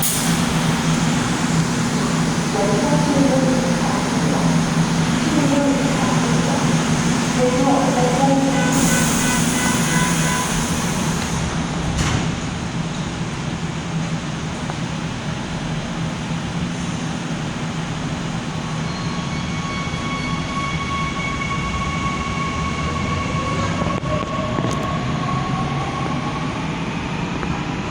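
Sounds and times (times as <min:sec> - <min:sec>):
electric train rumbling: 0:00.0 - 0:27.9.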